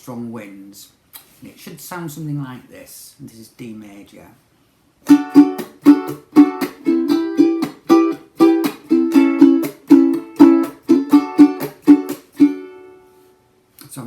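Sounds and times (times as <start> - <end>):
ukulele strumming: 5.0 - 13.4.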